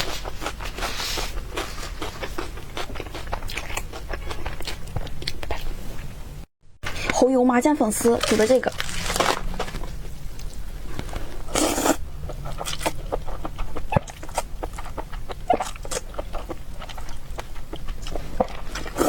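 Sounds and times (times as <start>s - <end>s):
wet chewing and mouth clicks: 0.0s - 6.1s, 10.3s - 19.0s
noodle slurp: 11.5s - 17.2s, 18.0s - 19.0s.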